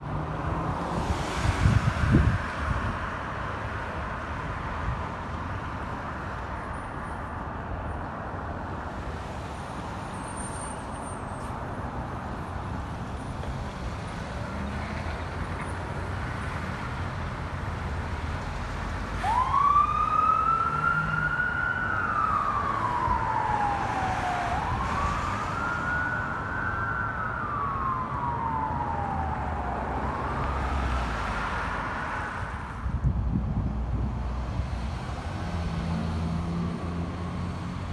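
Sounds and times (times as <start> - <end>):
road noise: 0.0 - 37.9
wind: 0.0 - 37.9
fire siren wailing: 19.2 - 32.5.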